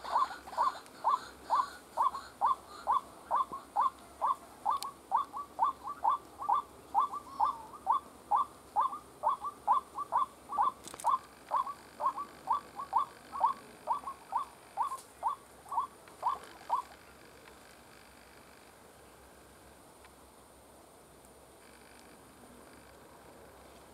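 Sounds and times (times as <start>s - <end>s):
bird calling short repeated notes: 0.0s - 16.9s.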